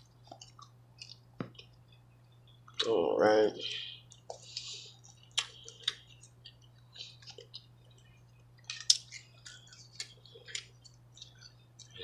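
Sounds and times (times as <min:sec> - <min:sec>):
wet chewing clicks and smacks: 0:00.0 - 0:03.0, 0:04.1 - 0:12.0.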